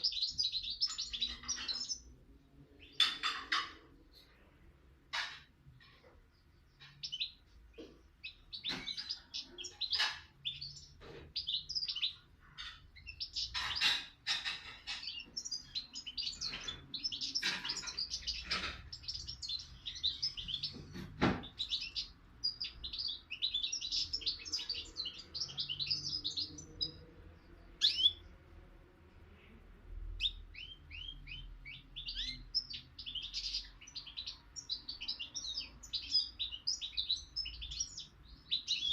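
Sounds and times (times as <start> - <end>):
songbird twittering: 0.0 - 2.2, 6.6 - 28.4, 30.1 - 38.9
sharp knocks: 20.1 - 22.0.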